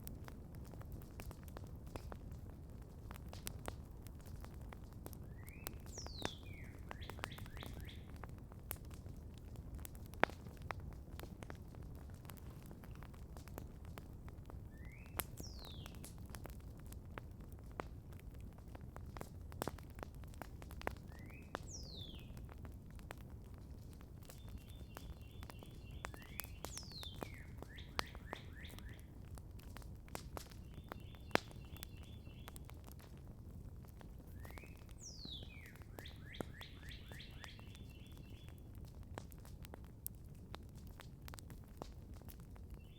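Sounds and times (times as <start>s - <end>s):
campfire crackling and popping: 0.0s - 42.9s
bird calling and trilling: 24.6s - 29.0s, 34.4s - 38.5s.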